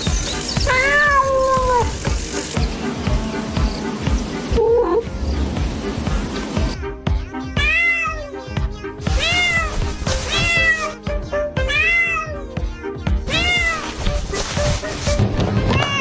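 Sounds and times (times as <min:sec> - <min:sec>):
background music: 0:00.0 - 0:16.0
cat meowing: 0:00.6 - 0:01.9, 0:07.5 - 0:08.5, 0:09.1 - 0:11.0, 0:11.6 - 0:12.5, 0:13.3 - 0:14.1, 0:15.6 - 0:16.0.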